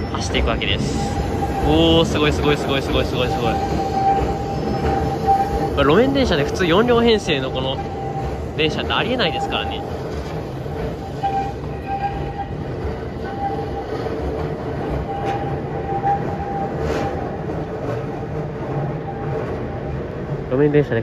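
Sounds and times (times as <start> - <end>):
electric train running: 0.0 - 21.0.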